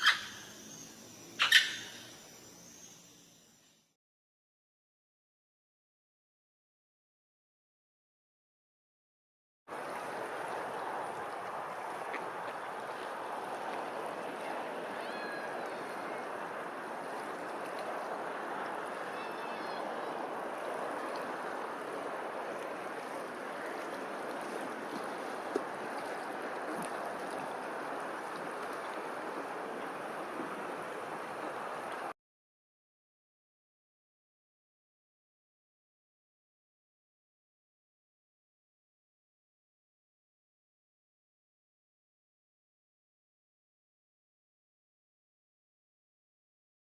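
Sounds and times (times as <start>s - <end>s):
faint animal calls: 1.4s - 2.1s, 14.9s - 16.2s
rushing outdoor noise: 9.7s - 32.1s.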